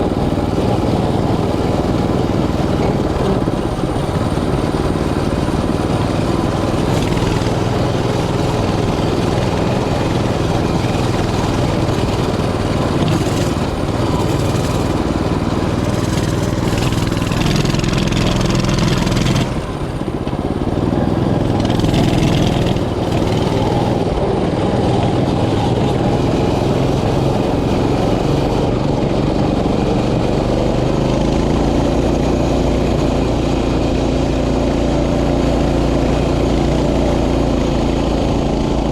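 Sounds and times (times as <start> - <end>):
small bike engine running: 0.0 - 38.9.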